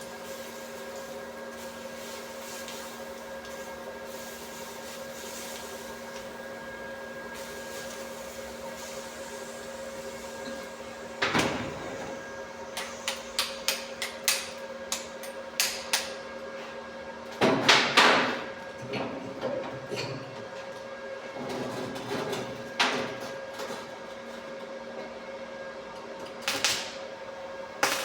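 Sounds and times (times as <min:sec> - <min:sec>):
steady electrical hum: 0:00.0 - 0:16.5, 0:26.4 - 0:28.0.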